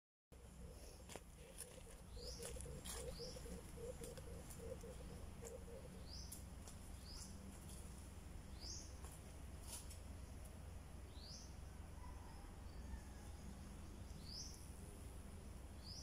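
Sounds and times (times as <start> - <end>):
outdoor background noise: 0.3 - 16.0.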